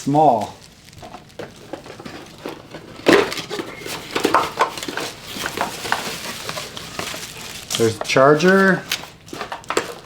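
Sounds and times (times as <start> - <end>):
packaging rustling: 0.4 - 10.0.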